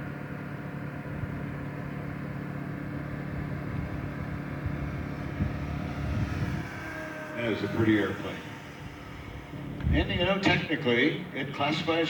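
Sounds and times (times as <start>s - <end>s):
model airplane propeller drone: 0.0s - 12.0s.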